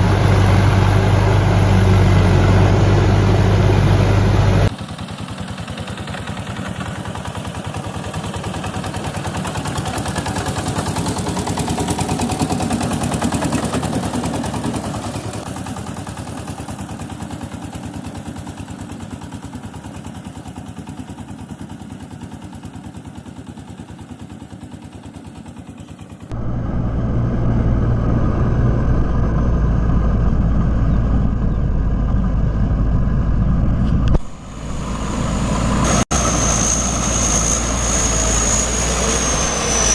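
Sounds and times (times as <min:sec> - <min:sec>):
walking tractor engine pulsing: 0:00.0 - 0:26.4
engine deep steady hum: 0:00.0 - 0:39.9.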